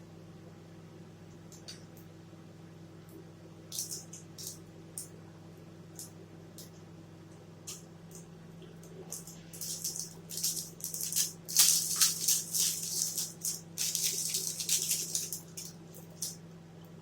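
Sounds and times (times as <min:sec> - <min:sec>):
plastic wrapper crackling: 0:09.5 - 0:16.4.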